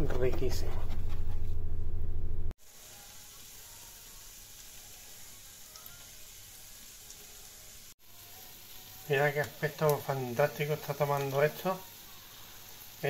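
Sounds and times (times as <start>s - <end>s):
eggs sizzling in frying pan: 2.5s - 13.0s.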